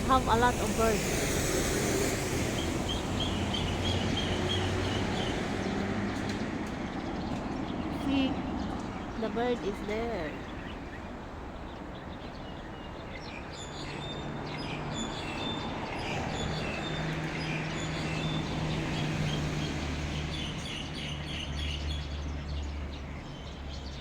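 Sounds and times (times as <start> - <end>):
flock of birds chirping: 0.0 - 24.0.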